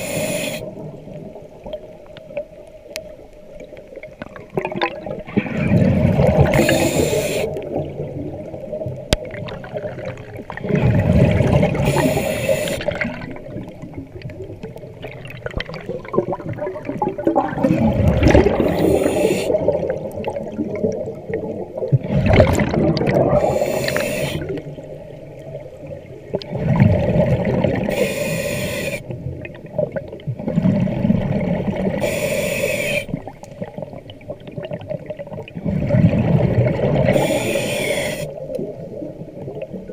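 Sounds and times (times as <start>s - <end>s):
diver inhaling through regulator: 0.0s - 0.8s, 6.4s - 7.6s, 11.7s - 13.0s, 18.5s - 19.8s, 23.3s - 24.6s, 27.8s - 29.1s, 32.0s - 33.2s, 37.1s - 38.4s
bubbling exhalation: 9.8s - 12.1s, 15.0s - 21.0s, 22.0s - 24.6s.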